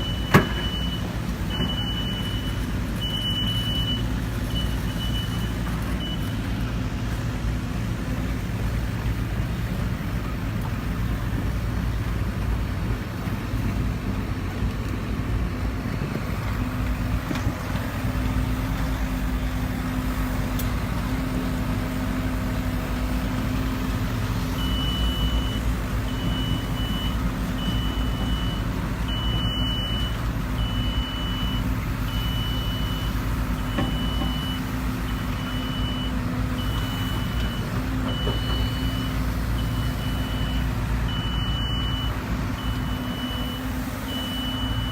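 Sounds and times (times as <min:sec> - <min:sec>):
reversing alarm beeps: 0:00.0 - 0:06.3, 0:24.6 - 0:44.9
excavator diesel engine running: 0:00.0 - 0:44.9.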